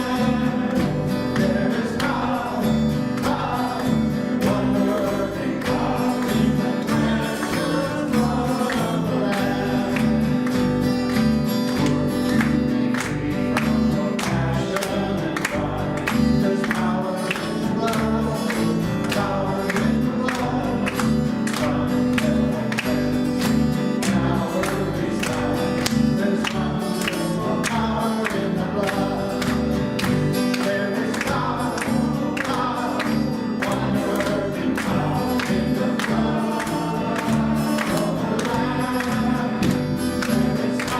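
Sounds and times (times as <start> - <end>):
band playing a steady beat: 0.0 - 40.9
voices singing a worship song: 0.0 - 40.9.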